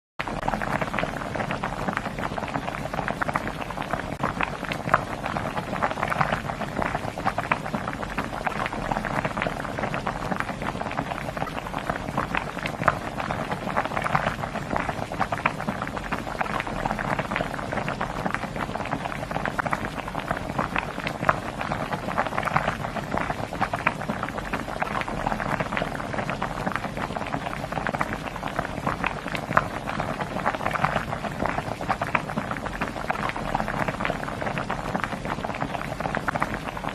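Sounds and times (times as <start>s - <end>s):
food crackling and bubbling: 0.2s - 36.9s.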